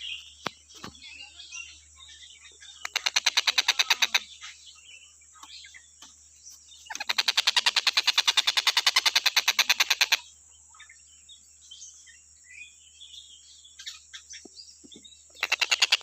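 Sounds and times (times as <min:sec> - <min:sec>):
kingfisher chirps: 0:02.7 - 0:04.6, 0:06.8 - 0:10.3, 0:15.3 - 0:16.0
kingfisher rattling trills: 0:02.8 - 0:04.3, 0:06.9 - 0:10.2, 0:15.3 - 0:16.0.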